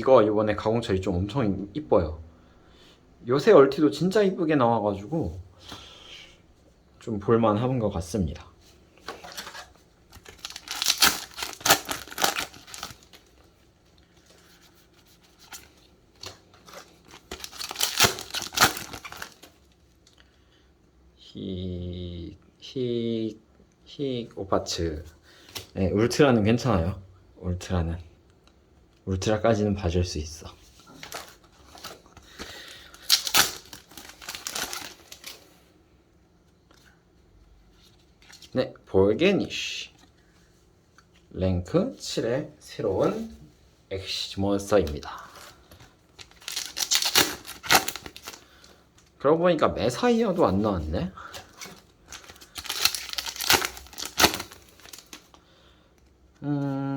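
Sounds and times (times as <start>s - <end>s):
handling of cards: 9.0s - 19.6s, 30.6s - 35.5s, 44.7s - 49.2s, 50.1s - 55.4s
foil packs tearing and crinkling: 10.2s - 13.2s, 16.8s - 19.6s, 31.0s - 35.4s, 46.2s - 48.7s, 51.2s - 55.2s.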